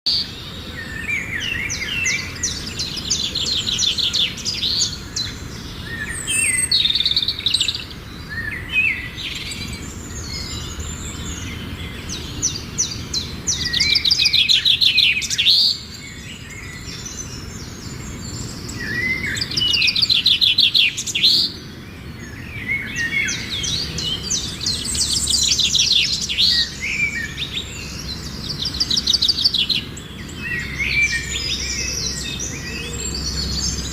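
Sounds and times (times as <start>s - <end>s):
songbirds chirping: 0.1s - 33.9s.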